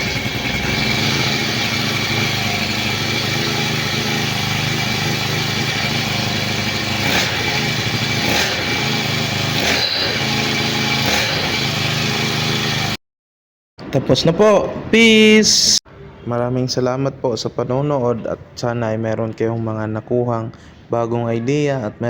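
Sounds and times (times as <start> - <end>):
brushcutter engine running: 0.0 - 13.0.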